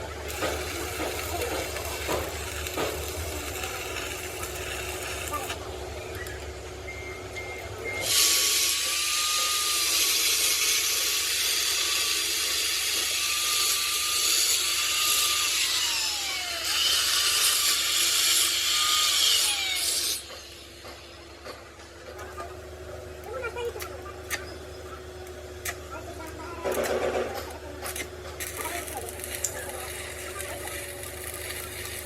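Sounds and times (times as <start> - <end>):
power tool hissing and whining: 0.0 - 5.7, 8.0 - 21.3, 28.4 - 32.0.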